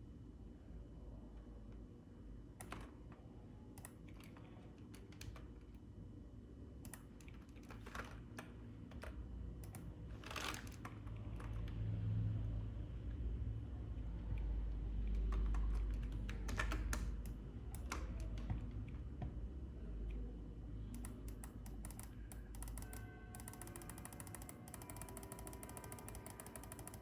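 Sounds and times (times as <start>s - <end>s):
computer keyboard keys clicking: 2.6s - 2.9s, 15.0s - 18.4s, 20.9s - 27.0s.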